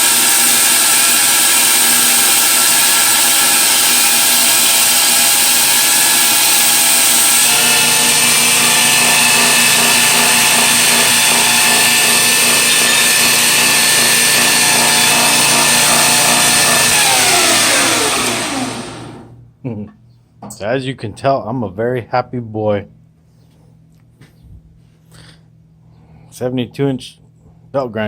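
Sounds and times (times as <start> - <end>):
grinder belt hissing: 0.0 - 19.3
belt grinder motor whine: 0.0 - 19.4.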